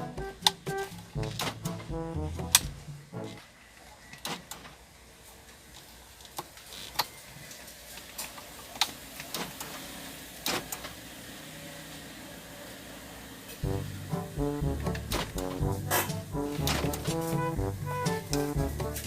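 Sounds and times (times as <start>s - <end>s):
faint steady background noise: 0.0s - 19.0s.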